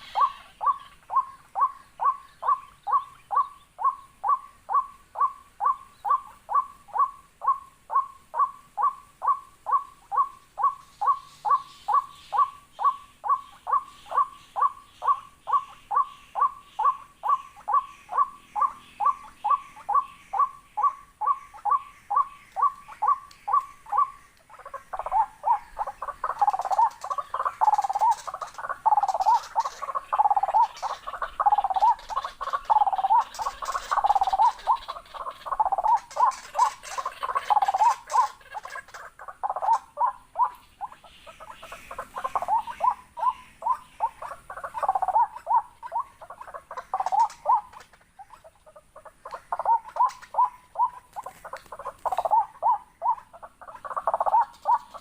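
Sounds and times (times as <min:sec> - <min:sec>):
bird calling: 0:00.0 - 0:55.0
bird clicks: 0:23.2 - 0:23.7.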